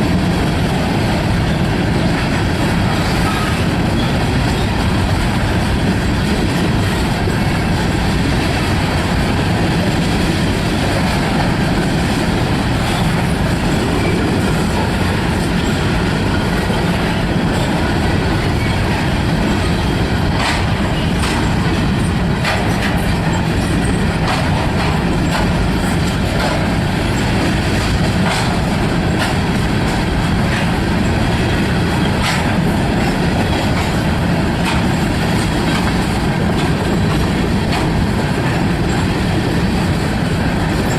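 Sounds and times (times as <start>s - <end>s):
train wheels rumbling on rail: 0.0s - 40.9s
wheels clicking on rail joints: 0.0s - 40.9s.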